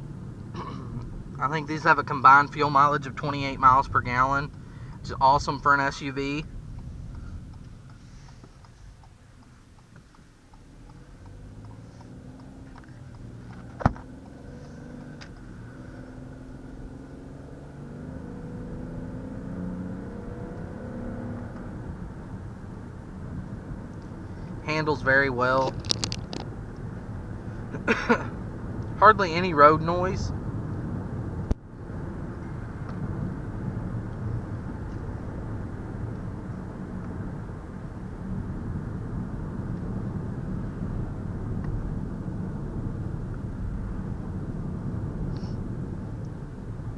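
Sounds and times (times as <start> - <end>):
car engine inside cabin: 0.0 - 46.9
road and tyre rumble: 0.0 - 46.9.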